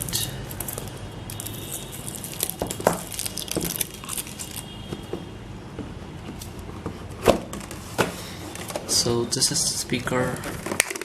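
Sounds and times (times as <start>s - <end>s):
packaging clicks and rustles: 0.5s - 4.7s.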